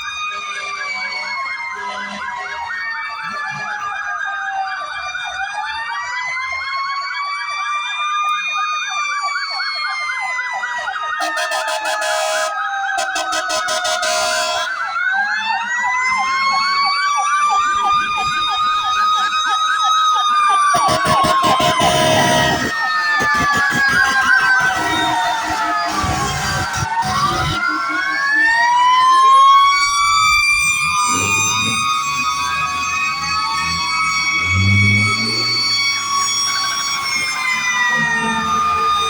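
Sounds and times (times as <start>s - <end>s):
fire truck sirens wailing: 0.0s - 39.0s
fast warbling siren yelp: 0.9s - 39.0s
short harsh horn blasts: 11.2s - 14.9s, 20.7s - 27.8s.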